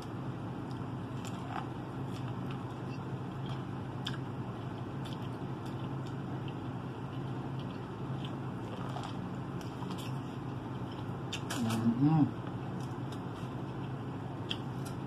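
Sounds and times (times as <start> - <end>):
steady low hum: 0.0 - 15.0
biting and chewing corn: 3.4 - 12.0.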